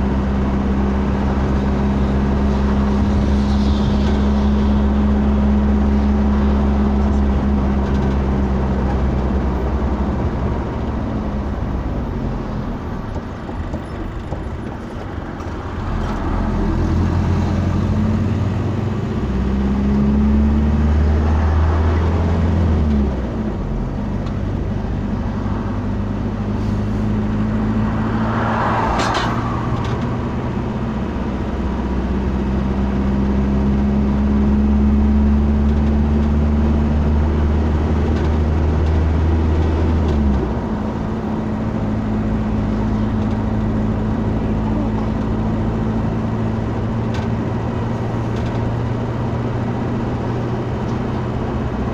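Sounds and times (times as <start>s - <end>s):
vehicle engine running: 0.0s - 51.9s
brief hissing: 2.9s - 6.2s.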